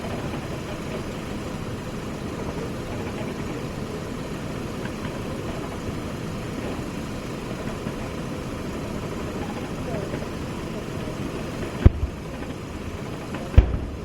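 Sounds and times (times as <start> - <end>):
engine drone with low rumble: 0.0 - 14.0.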